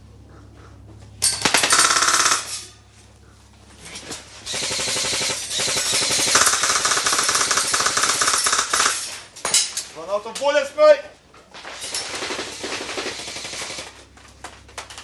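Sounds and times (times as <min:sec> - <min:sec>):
airsoft gun firing bursts: 0:01.3 - 0:02.5, 0:04.5 - 0:09.0, 0:12.2 - 0:13.9.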